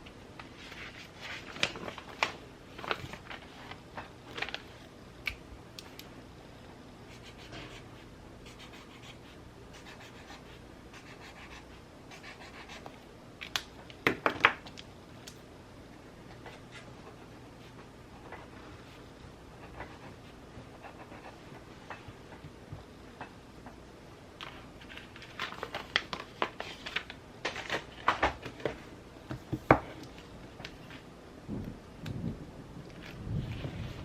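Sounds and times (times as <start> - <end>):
paper rustling: 0.4 - 4.9, 24.4 - 28.9.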